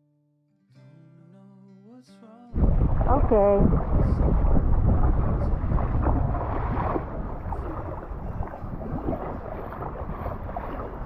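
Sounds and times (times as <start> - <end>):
water sloshing: 2.6 - 11.0
wind buffeting microphone: 2.6 - 11.0.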